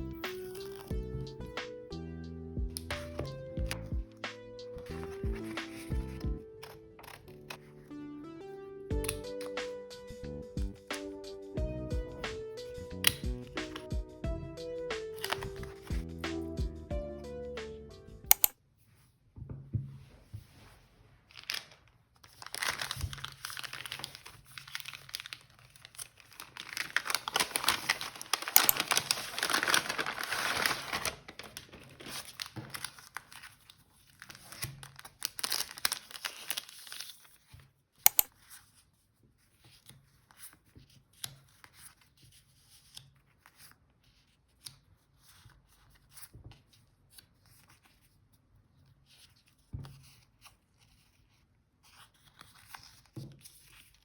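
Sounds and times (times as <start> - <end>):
packaging tearing and crinkling: 15.2 - 15.9, 21.3 - 37.5
sharp click: 18.3 - 18.5.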